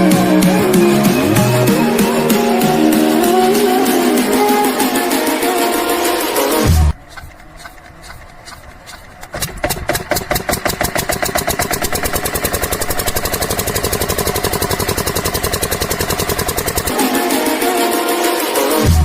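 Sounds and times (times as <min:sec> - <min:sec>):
music: 0:00.0 - 0:07.0, 0:16.9 - 0:19.0
pump engine running: 0:06.6 - 0:18.1.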